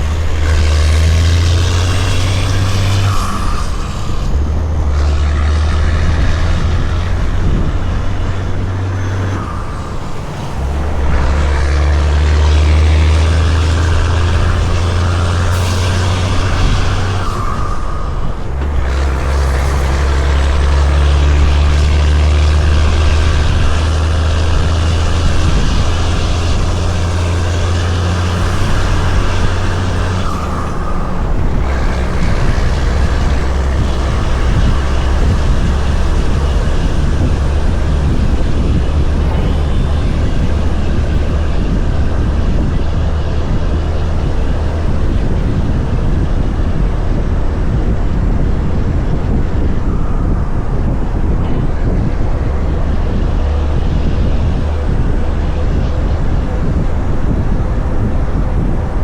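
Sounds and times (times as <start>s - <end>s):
road noise: 0.0s - 59.0s
truck diesel engine under load: 0.0s - 59.0s.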